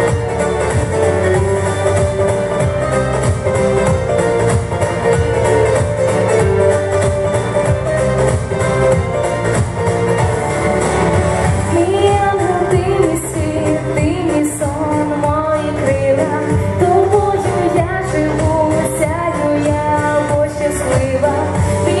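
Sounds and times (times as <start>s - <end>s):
instrumental accompaniment: 0.0s - 22.0s
woman singing pop song: 11.5s - 22.0s.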